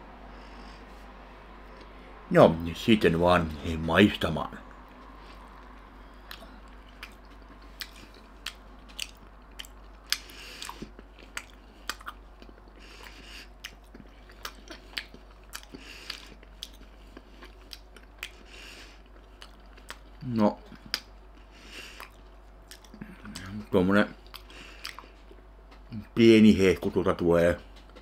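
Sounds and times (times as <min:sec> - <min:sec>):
person chewing food: 0:04.9 - 0:26.0.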